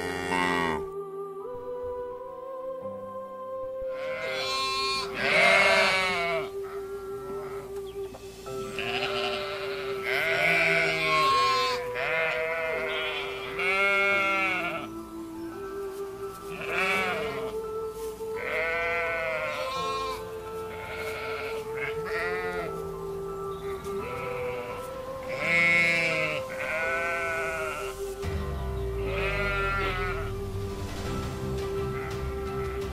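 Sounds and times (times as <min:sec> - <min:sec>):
sheep bleating: 0:00.0 - 0:00.9, 0:04.0 - 0:06.8, 0:08.6 - 0:14.9, 0:16.5 - 0:17.6, 0:18.4 - 0:22.8, 0:23.6 - 0:28.0, 0:29.0 - 0:30.3
background music with held tones: 0:00.0 - 0:32.9.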